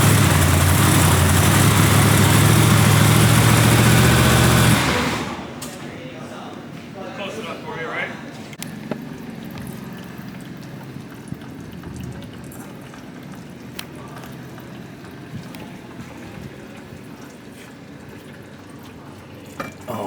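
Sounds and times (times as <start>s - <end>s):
liquid trickling: 8.6s - 20.0s.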